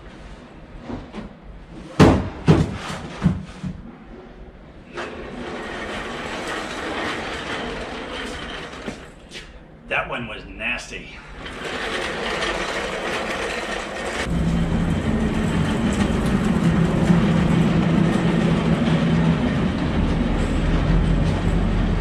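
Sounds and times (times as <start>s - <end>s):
hand cart rumbling and rattling: 5.0s - 9.2s, 11.4s - 22.0s.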